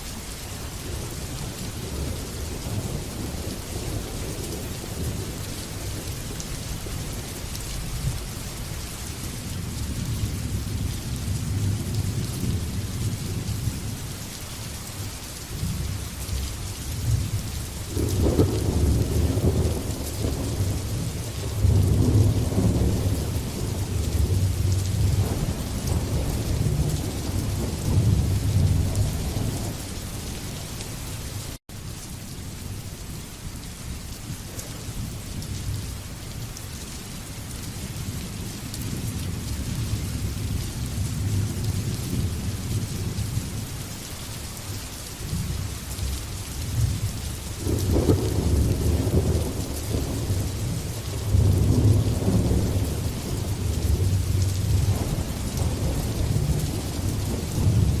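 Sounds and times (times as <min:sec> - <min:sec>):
steady rain falling: 0:00.0 - 0:58.0
thunder rolling: 0:17.9 - 0:29.8, 0:47.6 - 0:58.0.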